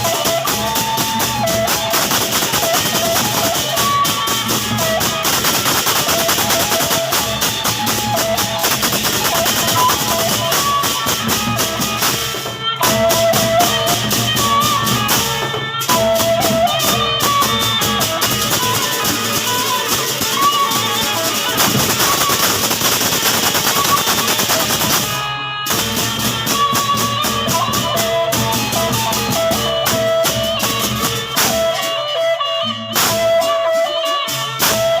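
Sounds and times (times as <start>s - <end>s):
large drums in a fast beat: 0.0s - 31.9s
clashing cymbals: 0.0s - 35.0s
wavering melody: 0.0s - 35.0s.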